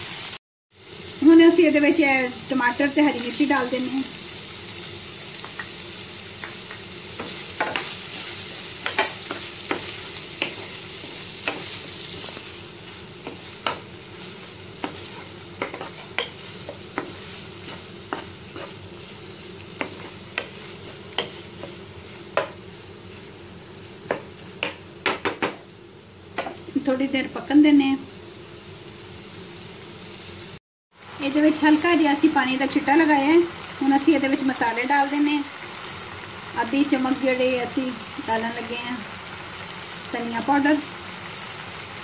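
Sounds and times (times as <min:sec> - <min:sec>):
vegetables sizzling in oil: 0:00.0 - 0:42.0
spatula knocking against pan: 0:24.1 - 0:25.6.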